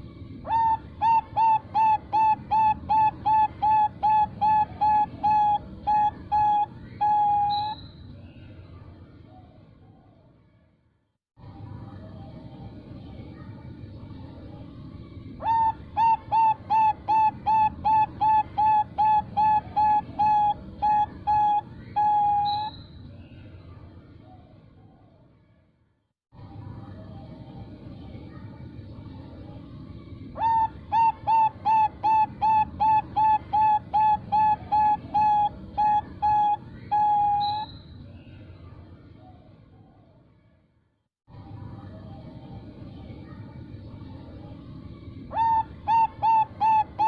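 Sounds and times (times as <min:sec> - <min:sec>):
dove cooing: 0:00.5 - 0:07.8, 0:15.4 - 0:22.7, 0:30.4 - 0:37.6, 0:45.3 - 0:47.0.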